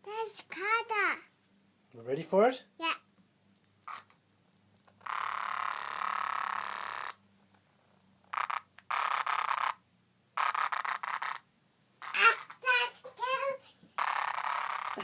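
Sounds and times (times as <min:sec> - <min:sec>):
cicada buzzing: 0:03.9 - 0:04.1, 0:05.0 - 0:07.2, 0:08.3 - 0:09.8, 0:10.4 - 0:11.4, 0:14.0 - 0:15.0.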